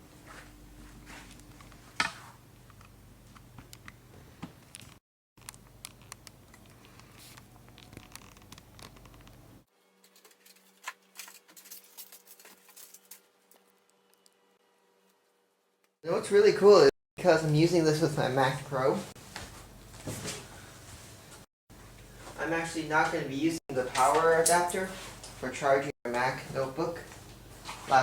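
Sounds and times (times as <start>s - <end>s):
faint steady hum: 0.0s - 9.6s.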